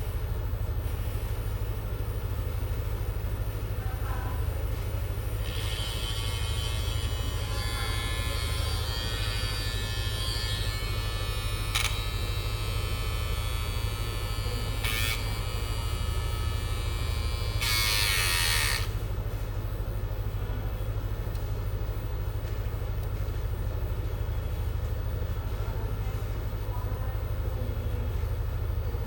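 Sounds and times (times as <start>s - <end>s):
trimmer motor buzzing: 5.4s - 19.0s.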